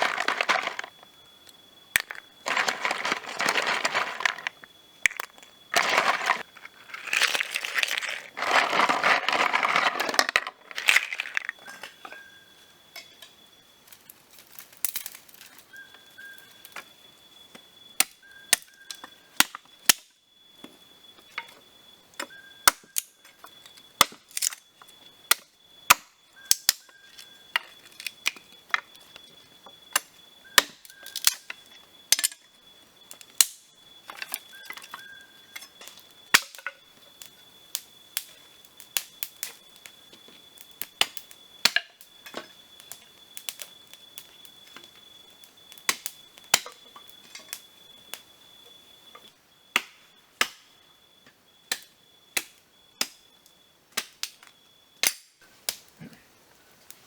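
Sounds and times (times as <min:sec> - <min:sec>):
snail shells clicking together: 0:02.0 - 0:11.6.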